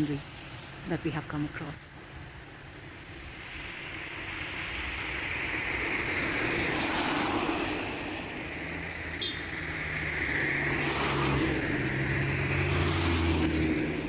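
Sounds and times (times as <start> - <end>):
vehicle passing: 4.2 - 14.0.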